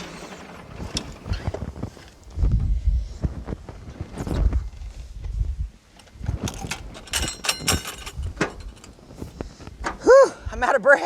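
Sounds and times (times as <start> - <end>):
metallic clanks and rattles: 0.0 - 2.3, 6.0 - 9.2.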